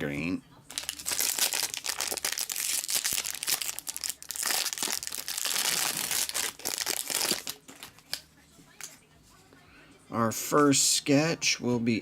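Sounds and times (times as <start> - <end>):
plastic wrapping crinkling: 0.7 - 8.2.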